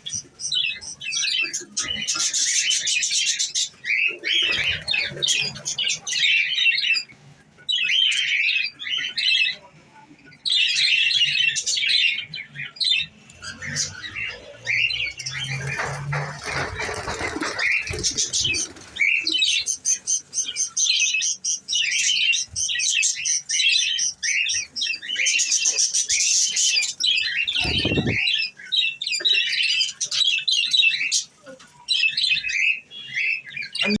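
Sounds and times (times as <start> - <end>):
budgerigars chattering: 10.5 - 31.3.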